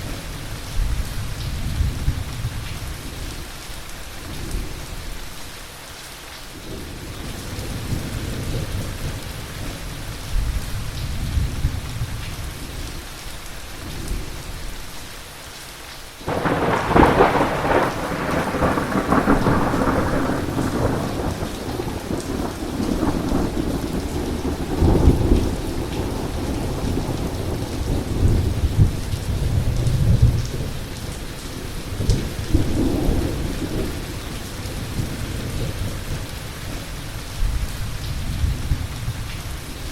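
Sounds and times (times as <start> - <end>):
heavy rain falling: 0.0 - 39.9
loud thunderclap: 16.3 - 30.8
thunder rumbling: 16.3 - 39.3.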